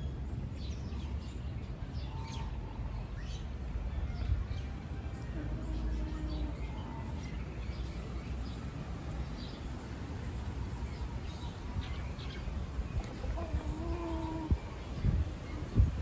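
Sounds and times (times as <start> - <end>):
low fowl-like call: 13.2 - 14.8.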